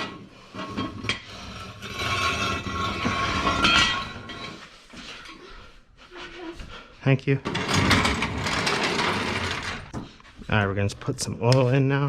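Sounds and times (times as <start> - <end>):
metal tools scraping and rattling: 0.0 - 5.3, 7.4 - 9.9.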